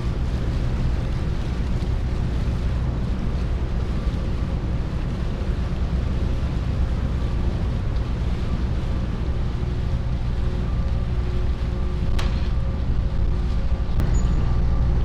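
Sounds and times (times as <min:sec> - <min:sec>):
faint steady hum: 0:00.0 - 0:15.0
ship engines rumbling: 0:00.0 - 0:15.0
wind buffeting microphone: 0:00.0 - 0:15.0.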